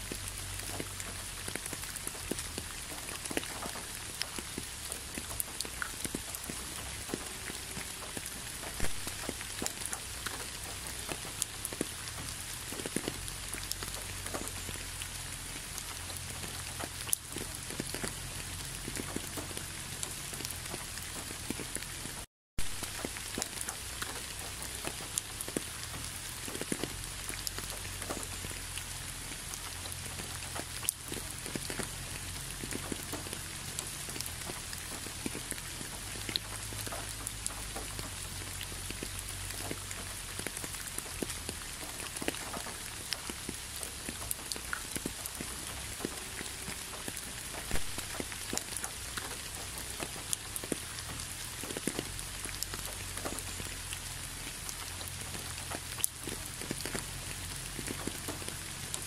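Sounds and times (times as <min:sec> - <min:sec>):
raindrops ticking: 0:00.0 - 0:59.0
steady rain hiss: 0:00.0 - 0:59.0.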